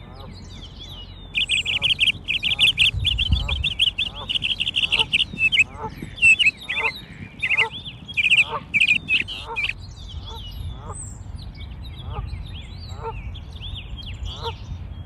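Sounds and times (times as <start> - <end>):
lower repeated bird calls: 0.0 - 10.5
birds chirping and twittering: 0.0 - 15.0.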